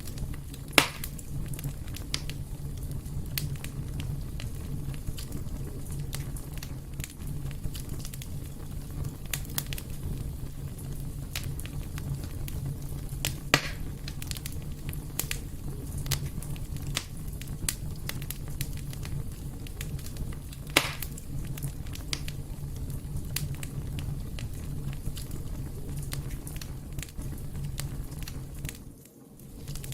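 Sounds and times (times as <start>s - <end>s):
fire crackling: 0.0s - 29.9s
fire low rumble: 0.0s - 29.9s
loud fire pops: 0.0s - 29.9s.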